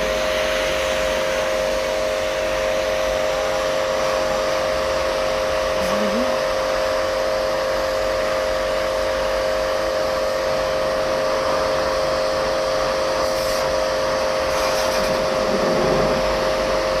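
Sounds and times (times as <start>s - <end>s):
electric motor whining: 11.4s - 17.0s
rush of air: 13.2s - 17.0s.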